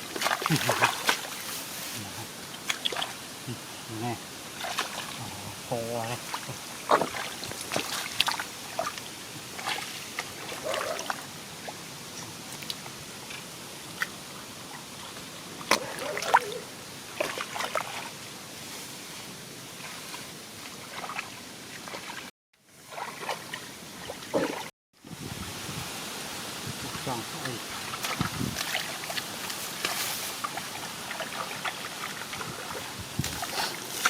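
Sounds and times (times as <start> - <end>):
steady hiss: 0.0 - 7.5
water splashing and sloshing: 0.0 - 24.7, 25.4 - 34.0.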